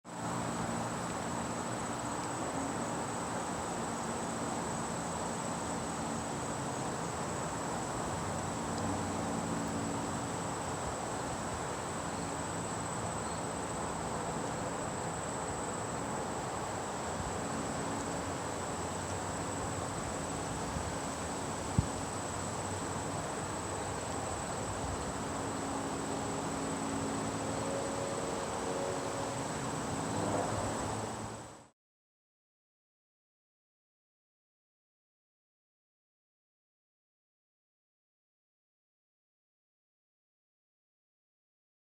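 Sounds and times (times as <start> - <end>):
insects trilling: 0.6 - 31.5.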